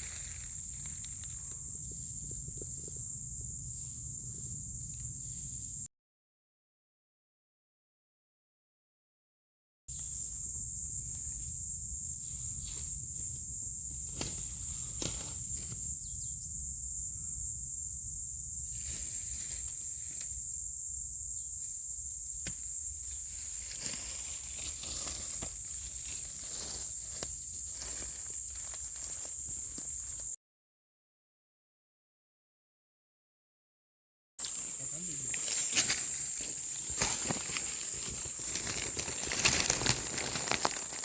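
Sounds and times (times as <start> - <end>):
twigs snapping and crackling: 15.0 - 15.3, 36.9 - 41.0
footsteps crunching through leaves: 23.5 - 30.0, 34.7 - 41.0
steady high hiss: 34.4 - 40.0.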